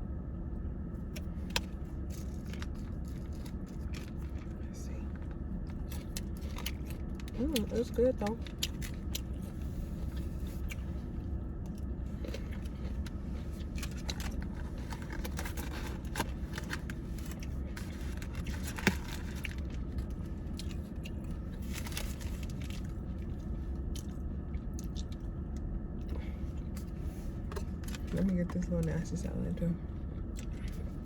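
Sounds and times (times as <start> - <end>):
steady low hum: 0.0 - 31.0
crinkles: 1.2 - 25.2
person chewing and eating: 5.2 - 7.8, 8.4 - 28.1.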